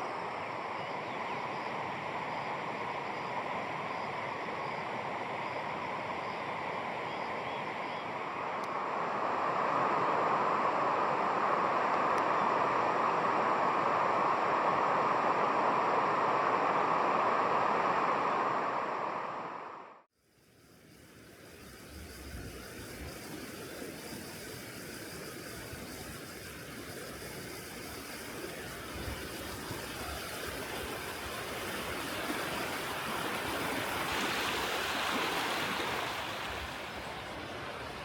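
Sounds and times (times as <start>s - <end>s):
rushing water: 21.2s - 38.0s.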